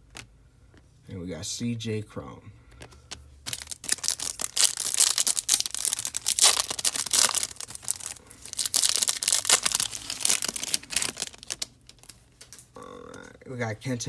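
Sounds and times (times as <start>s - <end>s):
foil wrapper crinkling and tearing: 3.4s - 12.8s.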